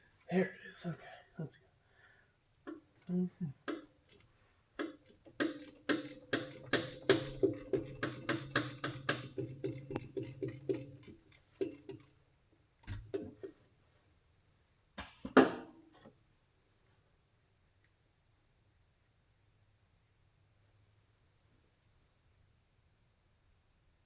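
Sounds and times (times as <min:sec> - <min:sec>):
knocks: 0:04.8 - 0:10.9
ratchet wrench clicking: 0:04.8 - 0:12.1.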